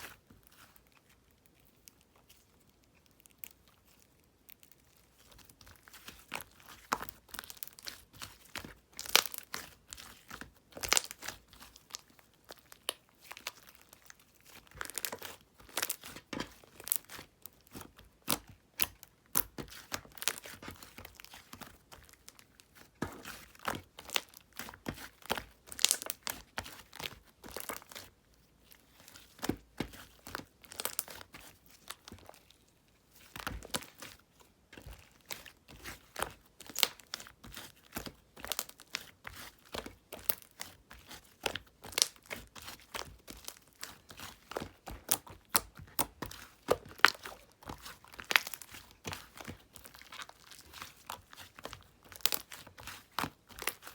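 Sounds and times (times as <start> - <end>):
slime crackling squeezed by hand: 0.0 - 28.1, 28.7 - 32.6, 34.8 - 53.9.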